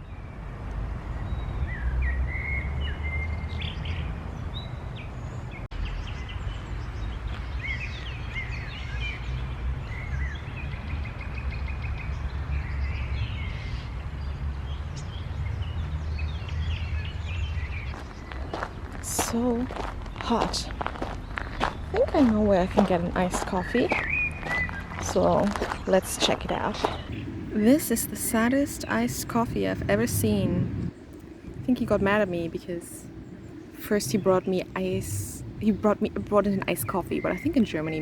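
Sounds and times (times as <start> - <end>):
songbirds chirping and trilling: 0.0 - 38.0
steady low rumble: 14.7 - 38.0.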